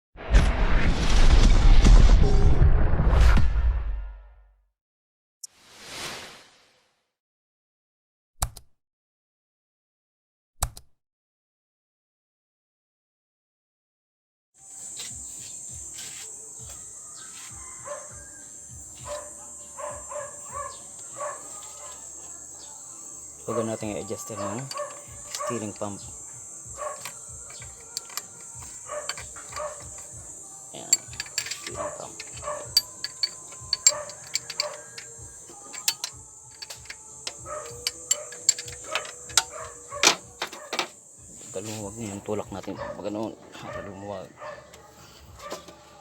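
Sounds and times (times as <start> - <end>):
high-pitched insect drone: 14.6 - 42.3
dog barking: 17.6 - 18.3, 19.0 - 22.2, 23.5 - 26.0, 26.7 - 30.1, 31.0 - 36.0, 37.2 - 40.9, 42.7 - 45.7
hand tools clicking and knocking: 24.2 - 26.1, 26.8 - 30.2, 30.8 - 41.0.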